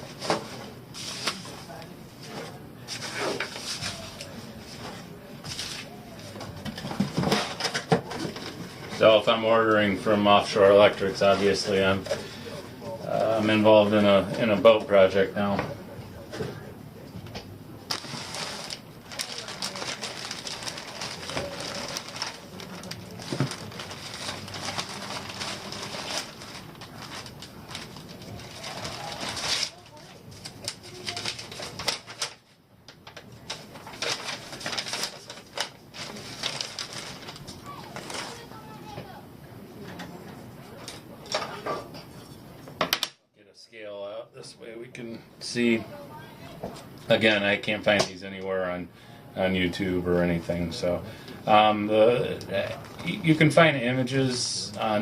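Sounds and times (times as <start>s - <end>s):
packaging rustling and crinkling: 17.9s - 38.8s.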